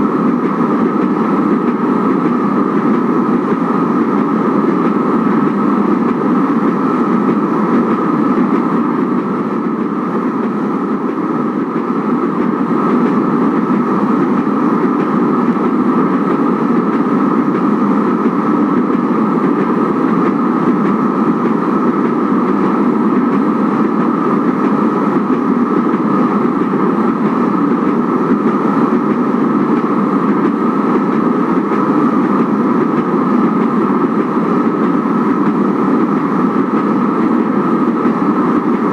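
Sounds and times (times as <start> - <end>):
light rail train rumble: 0.0 - 38.9.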